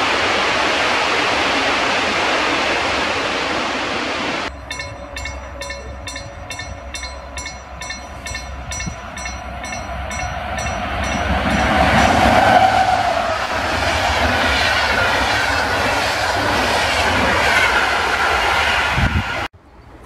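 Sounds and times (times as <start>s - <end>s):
train wheels rumbling on rails: 4.5s - 19.5s.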